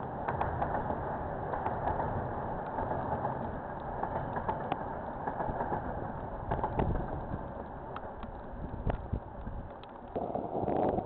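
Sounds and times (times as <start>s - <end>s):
light ticks: 2.6s - 11.0s.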